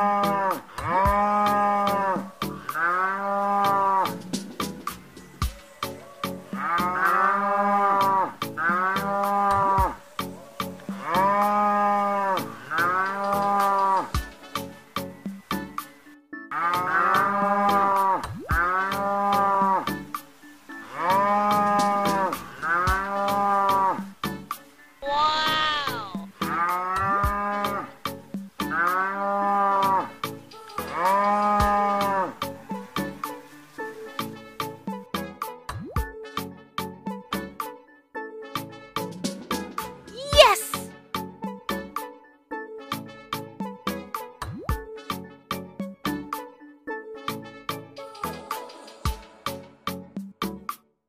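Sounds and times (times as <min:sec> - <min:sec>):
toy cow electronic moo: 0:00.0 - 0:04.2, 0:06.5 - 0:10.0, 0:10.9 - 0:14.1, 0:16.5 - 0:19.9, 0:25.0 - 0:27.9, 0:30.8 - 0:32.4
background music with steady beat: 0:00.0 - 0:50.9.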